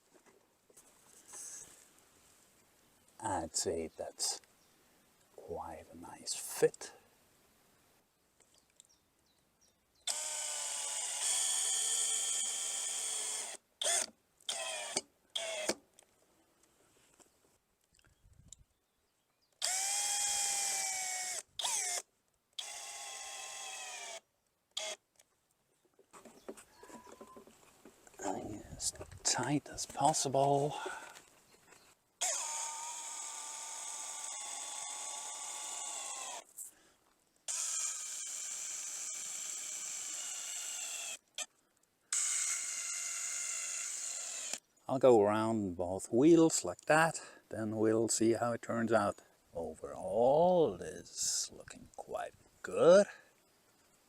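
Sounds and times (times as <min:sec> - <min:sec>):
power drill whining: 0:10.1 - 0:15.7, 0:19.6 - 0:22.0, 0:22.6 - 0:24.2, 0:32.2 - 0:36.5, 0:37.5 - 0:41.5, 0:42.1 - 0:44.6.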